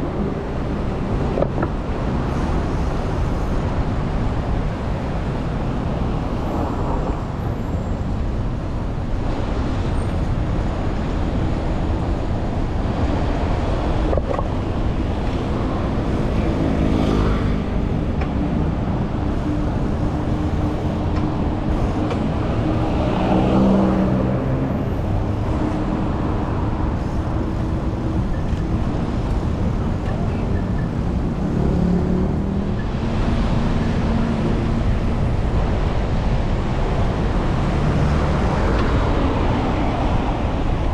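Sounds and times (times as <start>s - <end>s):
passing vehicle engines: 0.0s - 40.9s
rumble of motor vehicles: 0.0s - 40.9s.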